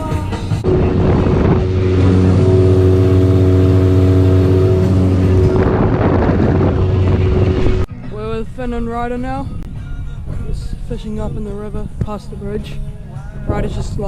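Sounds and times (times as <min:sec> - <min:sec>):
outboard motor running: 0:00.5 - 0:07.9
wind and water rushing: 0:00.6 - 0:07.9.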